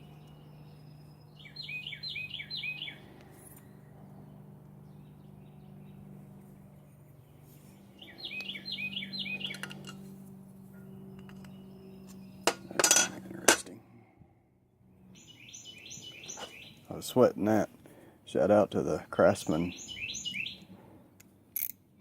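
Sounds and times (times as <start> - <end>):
bird chirping: 0.0 - 10.0, 10.6 - 12.8, 14.9 - 17.2, 19.2 - 20.8
low steady hum: 0.0 - 22.0
metal hand tools clinking: 12.5 - 13.7.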